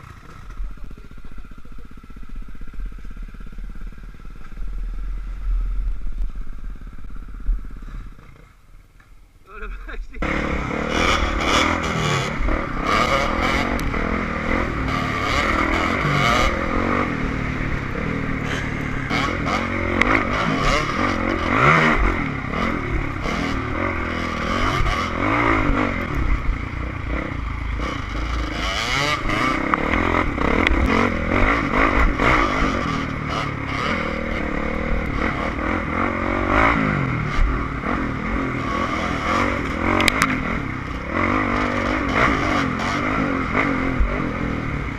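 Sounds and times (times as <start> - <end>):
dirt bike engine revving: 9.5 - 44.9.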